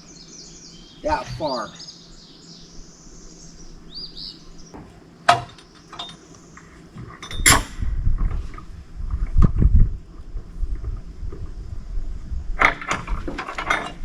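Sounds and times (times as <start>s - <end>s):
faint bird chirp: 0.0s - 4.8s
panel dragging with low thuds: 4.7s - 5.6s.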